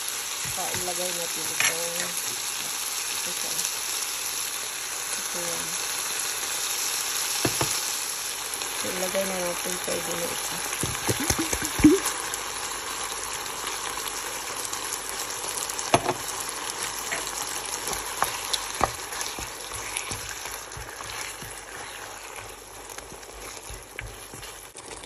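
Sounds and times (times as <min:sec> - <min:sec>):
food sizzling in a frying pan: 0:00.0 - 0:25.0
utensil knocking on pan: 0:07.4 - 0:07.8, 0:15.9 - 0:16.2.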